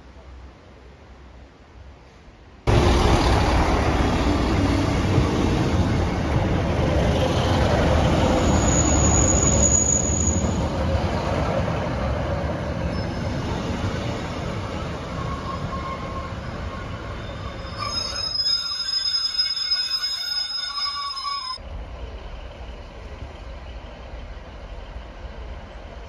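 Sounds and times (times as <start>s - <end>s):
diesel train passing: 0.0s - 26.0s
brief high squeal: 8.4s - 10.6s, 17.1s - 21.6s.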